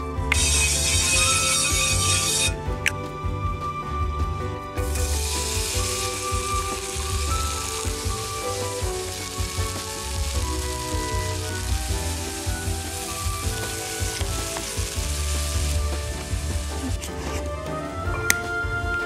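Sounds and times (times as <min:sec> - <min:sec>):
background music: 0:00.0 - 0:19.0
vegetables sizzling in a wok: 0:00.3 - 0:02.5, 0:04.8 - 0:17.3.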